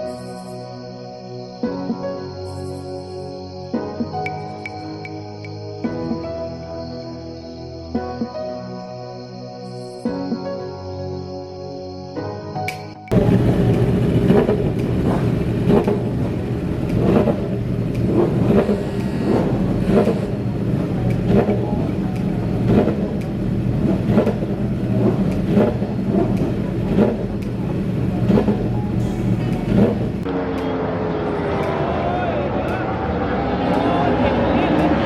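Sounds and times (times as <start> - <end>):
motorcycle engine running: 13.1 - 30.4.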